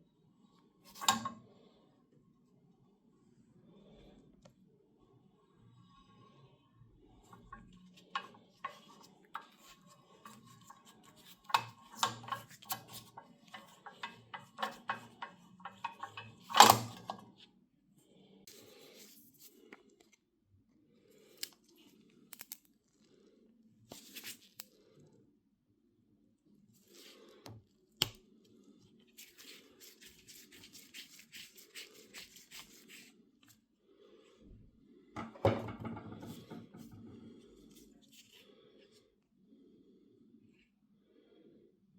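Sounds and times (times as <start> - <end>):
clicks and light knocks: 1.0 - 1.4, 10.2 - 17.3.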